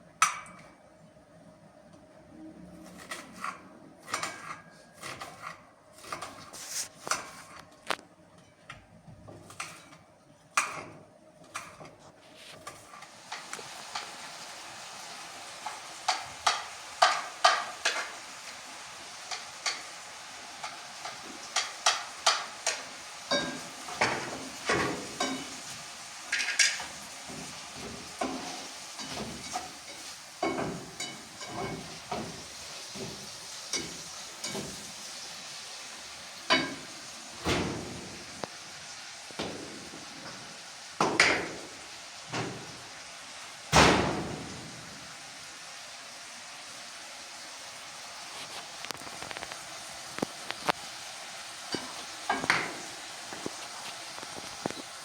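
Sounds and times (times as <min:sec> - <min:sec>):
food sizzling in a pan: 0:11.6 - 0:55.0
spoon scraping and tapping: 0:26.3 - 0:32.4.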